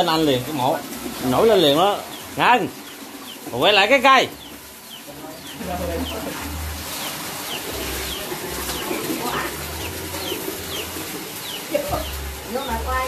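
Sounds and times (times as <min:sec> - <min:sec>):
small bird chirping: 0:01.8 - 0:13.0.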